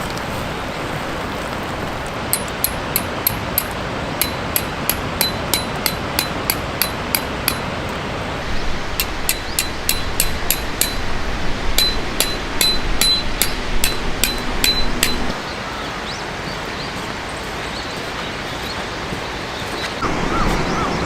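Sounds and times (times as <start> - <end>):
sharp metallic taps: 2.3 - 7.7, 9.0 - 11.1, 11.8 - 15.4.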